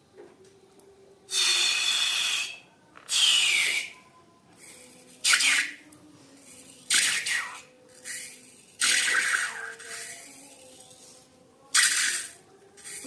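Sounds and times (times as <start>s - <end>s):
balloon air hissing: 1.3s - 4.0s, 4.6s - 5.8s, 6.5s - 10.4s, 11.7s - 13.0s
balloon neck squealing: 1.3s - 4.0s.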